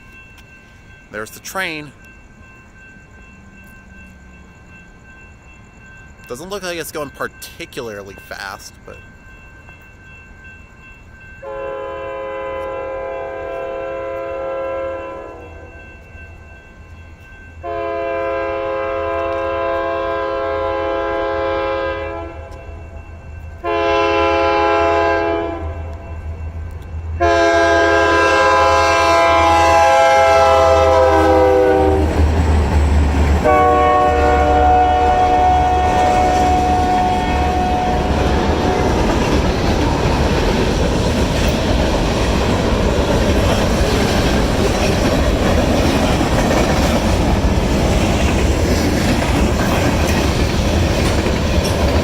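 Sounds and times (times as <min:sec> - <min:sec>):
passing train rumble: 0:00.0 - 0:52.0
locomotive air horn blasts: 0:11.4 - 0:15.6, 0:17.6 - 0:22.5, 0:23.6 - 0:25.7, 0:27.2 - 0:32.1, 0:33.4 - 0:38.1.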